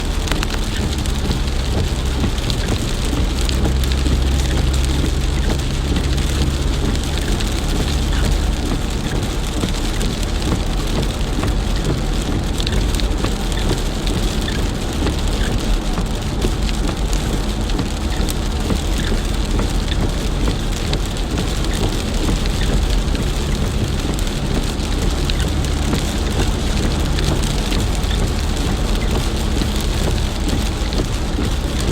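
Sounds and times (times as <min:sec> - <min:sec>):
heavy rain pattering: 0:00.0 - 0:31.9
low rumble: 0:00.0 - 0:31.9.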